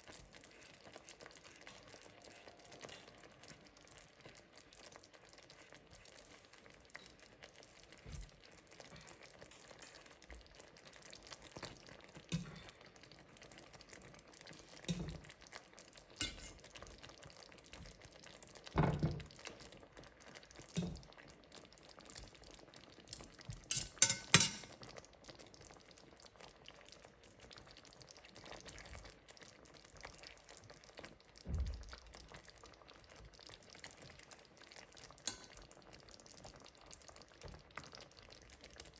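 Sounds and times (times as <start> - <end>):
utensil stirring food in pan: 0.0 - 25.9, 32.4 - 38.9
faint frying sizzle: 0.0 - 38.9.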